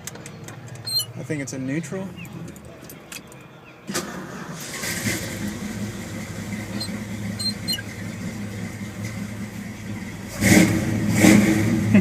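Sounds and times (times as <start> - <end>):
engine idling and revving: 4.0 - 12.0.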